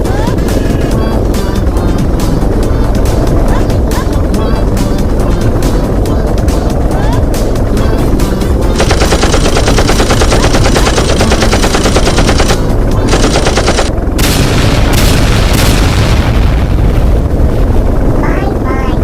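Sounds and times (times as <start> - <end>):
low drone: 0.0 - 19.0
rapid gunfire: 8.2 - 17.6
heavy bangs: 8.7 - 18.2.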